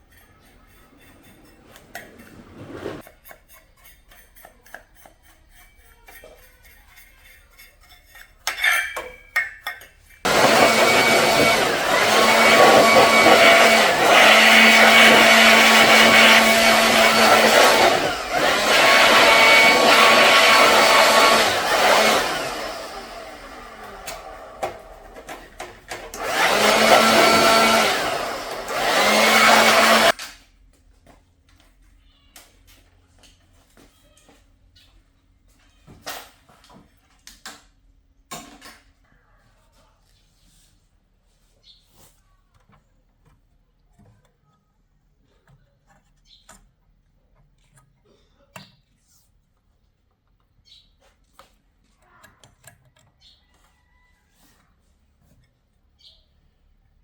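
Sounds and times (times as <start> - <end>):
air blower running: 10.3 - 25.1, 25.9 - 30.2.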